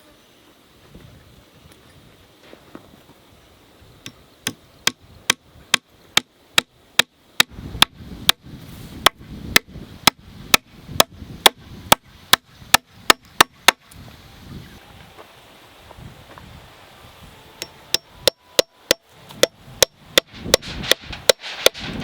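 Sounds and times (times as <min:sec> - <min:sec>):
hand tool striking: 0:17.6 - 0:22.0.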